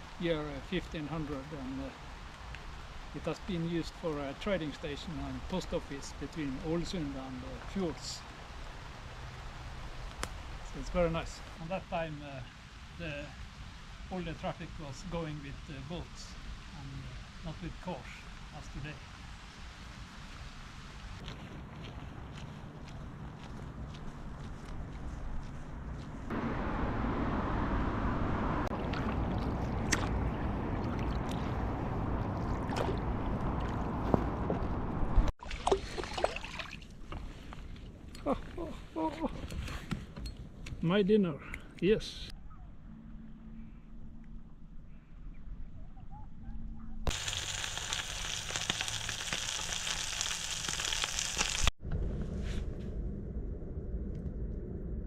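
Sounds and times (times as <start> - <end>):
food sizzling in a pan: 47.1 - 51.7.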